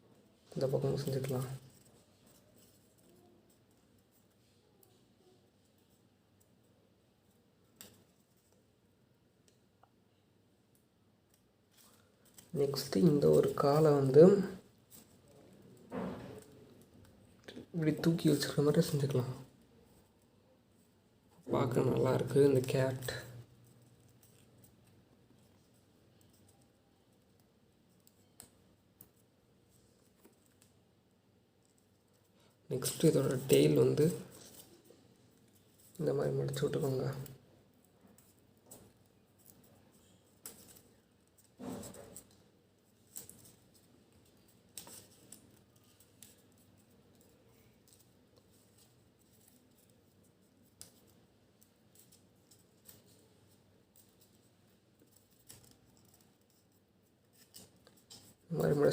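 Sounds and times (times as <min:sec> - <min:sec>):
paper model ticks and clicks: 0:21.4 - 0:30.8, 0:31.6 - 0:58.9.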